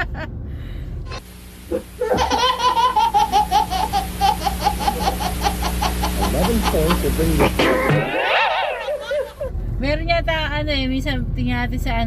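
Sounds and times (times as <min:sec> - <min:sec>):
person laughing hard: 0:01.7 - 0:09.5.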